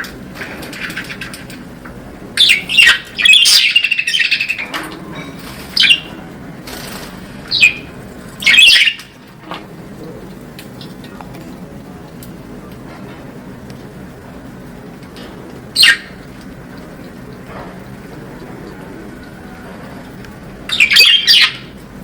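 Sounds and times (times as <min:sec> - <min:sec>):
budgerigars chirping: 0:02.4 - 0:04.7, 0:05.8 - 0:06.2, 0:07.5 - 0:09.0, 0:15.8 - 0:16.2, 0:20.7 - 0:21.7.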